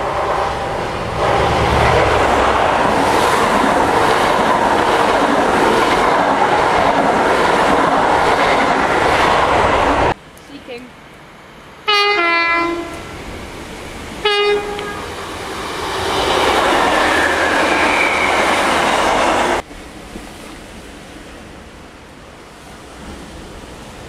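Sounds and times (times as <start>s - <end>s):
train passing with wheel rush: 0.0s - 24.0s
two-tone train horn: 11.9s - 13.0s, 14.2s - 15.2s.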